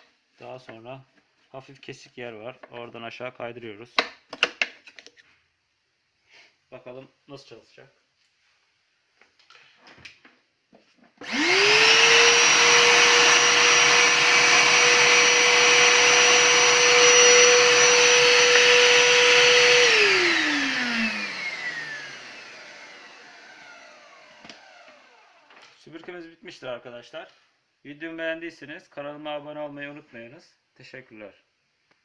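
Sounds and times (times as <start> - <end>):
vacuum cleaner motor whine: 11.2 - 25.8.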